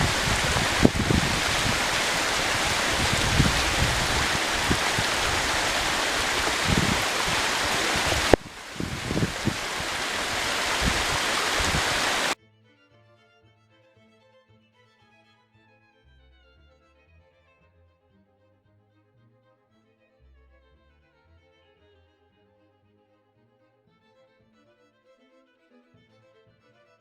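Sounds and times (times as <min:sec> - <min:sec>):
stream water rushing: 0:00.0 - 0:12.4
quiet violin music: 0:12.4 - 0:27.0.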